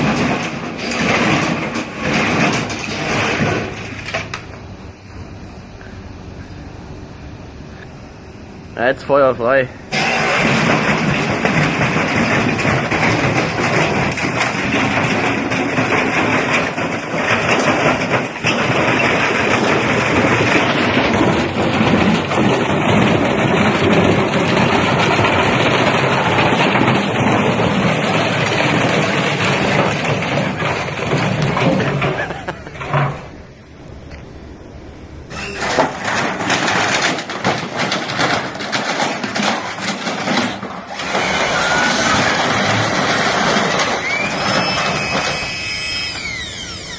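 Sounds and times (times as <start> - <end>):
stone banging and rattling: 0.0 - 4.4, 9.9 - 33.4, 35.3 - 46.9
washing machine spinning: 9.8 - 46.9.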